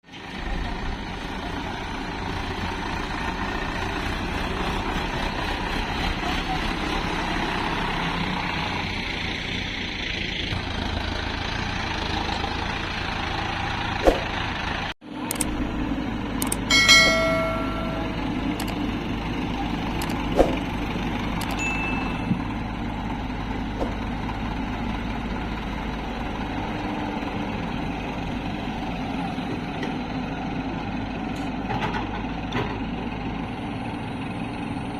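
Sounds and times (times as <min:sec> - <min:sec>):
diesel engines running: 0:00.0 - 0:34.9
ringing metallic clang: 0:16.7 - 0:18.5, 0:21.6 - 0:22.5.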